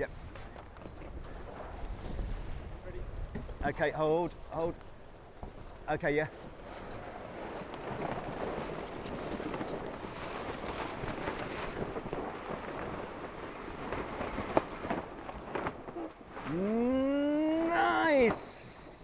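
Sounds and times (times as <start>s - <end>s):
sharp knocks from boat: 3.2s - 3.6s
man calling out: 16.5s - 19.0s.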